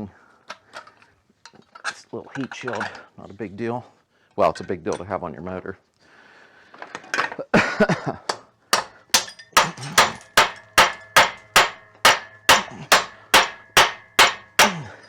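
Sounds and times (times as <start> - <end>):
hammer blows on metal engine: 8.8 - 14.9.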